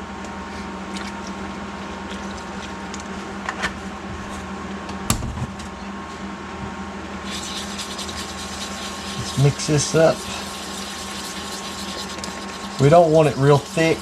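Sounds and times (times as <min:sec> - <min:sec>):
kitchen appliance humming: 0:07.0 - 0:14.0.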